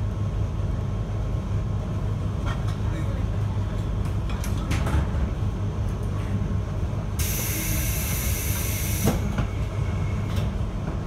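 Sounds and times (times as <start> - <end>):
train running rumble: 9.1 - 11.0.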